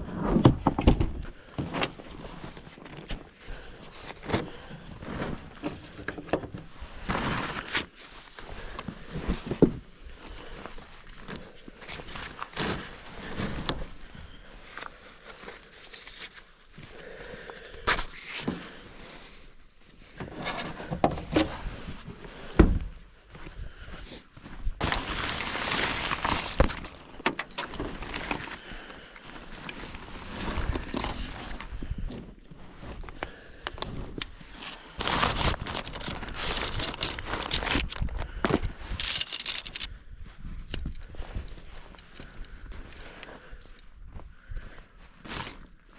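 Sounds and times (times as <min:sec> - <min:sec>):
heavy thump: 0:22.6 - 0:22.9
rustling: 0:24.1 - 0:31.8, 0:32.6 - 0:40.0.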